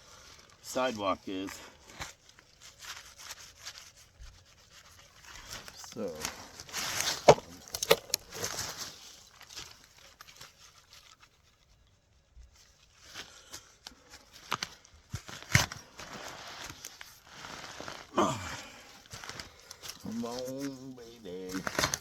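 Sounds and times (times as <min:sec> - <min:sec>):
rustling and crunching in leaves: 0:01.3 - 0:11.8, 0:15.2 - 0:18.1.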